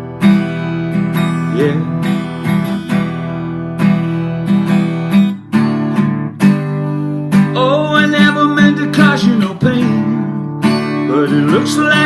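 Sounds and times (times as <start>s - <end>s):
acoustic guitar strumming: 0.0s - 12.0s
person singing: 1.3s - 2.6s, 7.5s - 12.0s.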